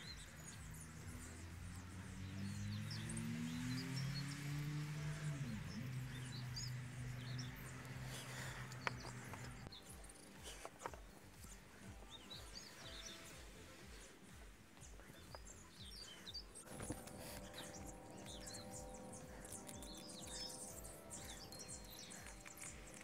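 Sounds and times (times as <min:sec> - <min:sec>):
small birds chirping: 0:00.0 - 0:23.0
faint steady held tones: 0:04.9 - 0:23.0
low background rumble: 0:11.0 - 0:23.0.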